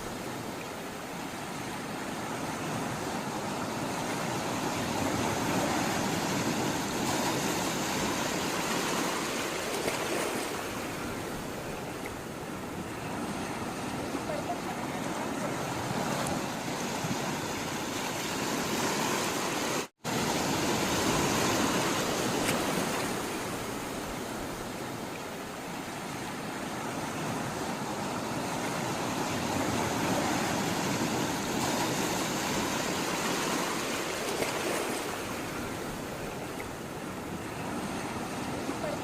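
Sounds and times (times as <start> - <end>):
sea water rushing: 0.0 - 39.0.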